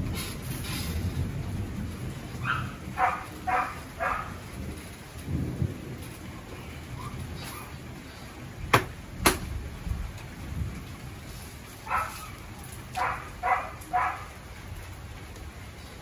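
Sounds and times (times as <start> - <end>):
heavy rain falling: 0.0 - 16.0
low thunder rumbling: 0.0 - 16.0
dog barking: 2.4 - 4.4, 11.8 - 12.4, 13.0 - 14.4.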